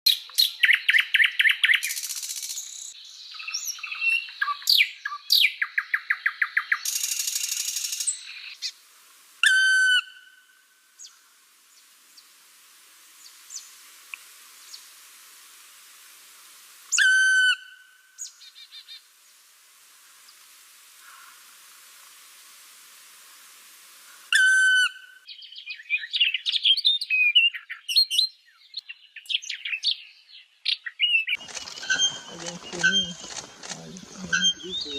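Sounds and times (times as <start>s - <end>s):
bird calls: 24.1s - 34.9s
faint bird chirps: 24.3s - 34.9s
songbird singing trills: 24.4s - 34.9s.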